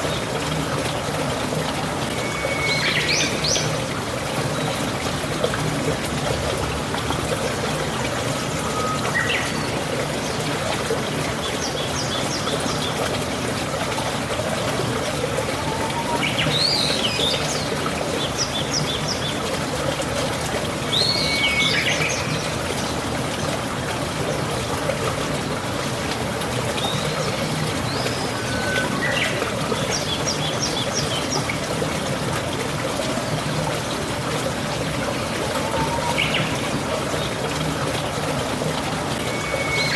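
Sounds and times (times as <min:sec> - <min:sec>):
rain falling: 0:00.0 - 0:39.9
running water trickling: 0:00.0 - 0:39.9
birds chirping and whistling: 0:08.6 - 0:09.7, 0:27.9 - 0:29.4, 0:39.2 - 0:39.9.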